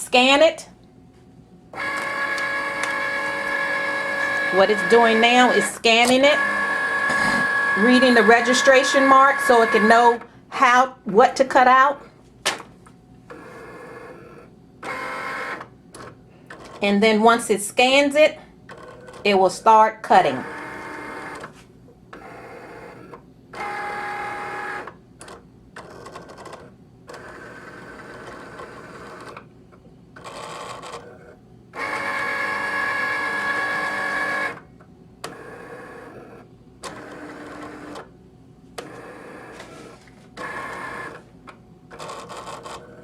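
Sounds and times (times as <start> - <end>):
cutting machine motors whirring: 1.8 - 10.3, 13.3 - 15.6, 20.4 - 21.5, 22.1 - 25.0, 30.2 - 34.6, 38.8 - 41.2.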